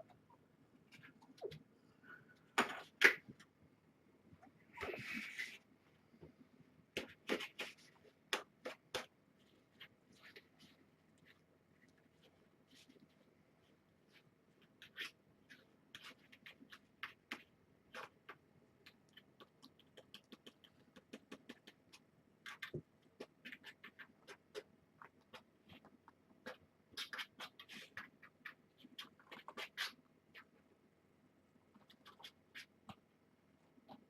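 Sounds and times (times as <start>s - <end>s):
kittens clicking and scratching: 14.1s - 30.6s.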